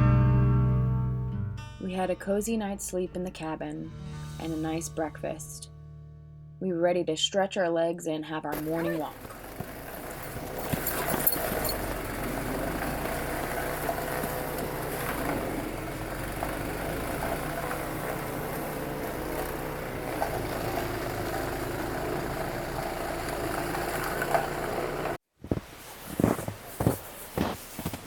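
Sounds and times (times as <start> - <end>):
engine running steadily: 8.6 - 25.2.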